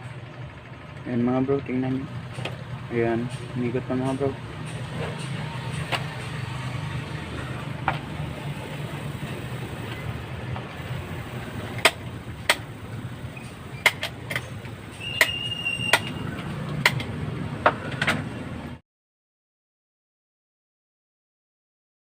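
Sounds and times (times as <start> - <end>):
electric fan motor humming: 0.0 - 18.8
sharp clicks and knocks: 4.6 - 6.3, 7.8 - 8.1, 11.7 - 12.7, 13.4 - 18.3.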